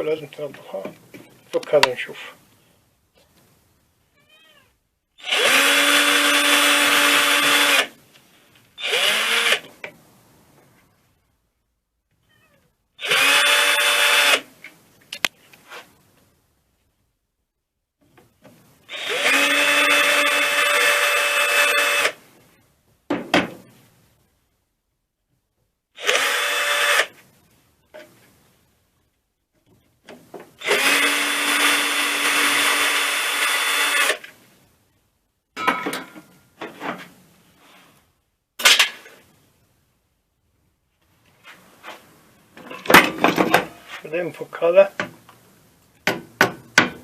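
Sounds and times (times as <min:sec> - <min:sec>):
electric drill-driver whining: 0:05.2 - 0:07.9, 0:08.8 - 0:09.7, 0:13.0 - 0:14.4, 0:18.9 - 0:22.2, 0:26.0 - 0:27.1, 0:30.6 - 0:34.3.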